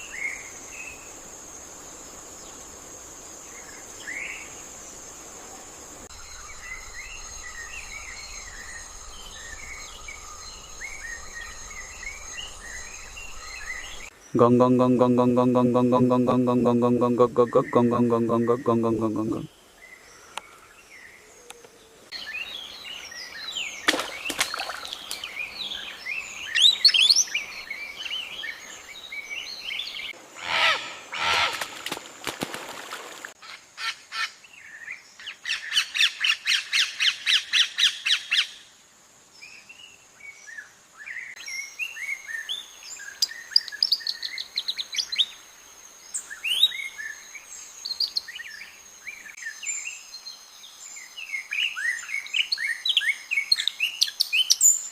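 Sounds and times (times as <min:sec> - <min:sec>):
birds calling and chirping: 0:06.1 - 0:32.0
rapid repeated bird notes: 0:14.4 - 0:19.5.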